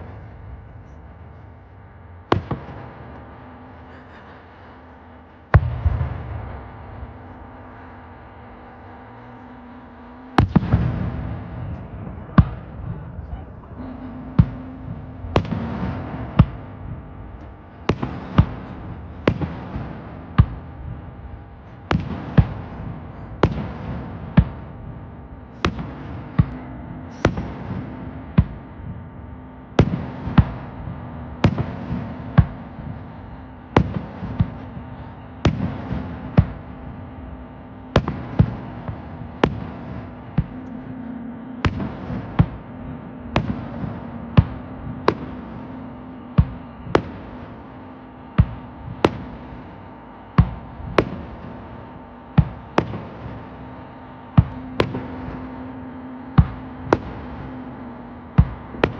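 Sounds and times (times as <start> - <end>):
fireworks bursting with echo: 0.0 - 58.9.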